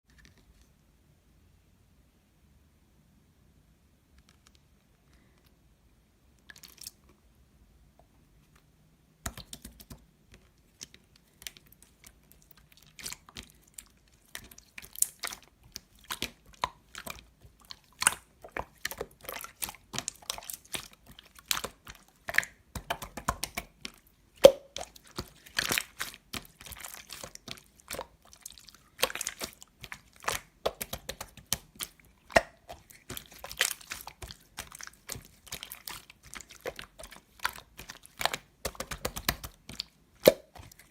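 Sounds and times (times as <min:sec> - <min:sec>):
slime crackling and popping: 0:10.7 - 0:40.9.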